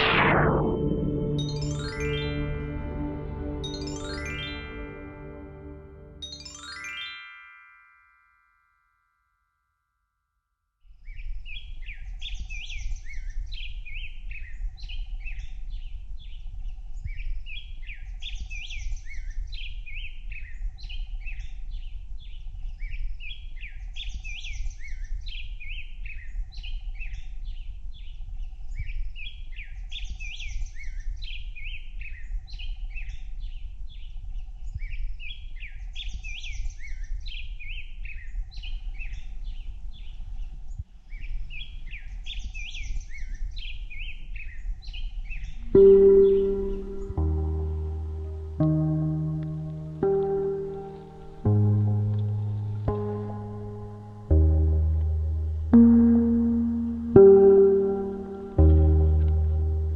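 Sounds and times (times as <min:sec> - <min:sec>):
low steady rumble: 0:46.8 - 0:59.9.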